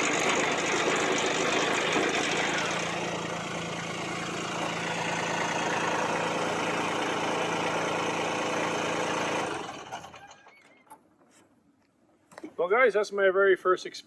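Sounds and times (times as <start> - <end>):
tractor diesel engine running: 0.0 - 10.6.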